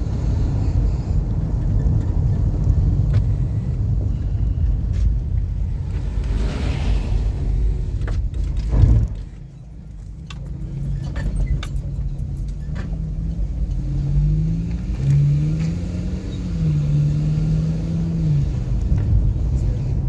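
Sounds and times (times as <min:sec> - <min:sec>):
car engine accelerating: 0:00.0 - 0:20.0
road rumble: 0:00.0 - 0:20.0
thud: 0:08.3 - 0:09.4.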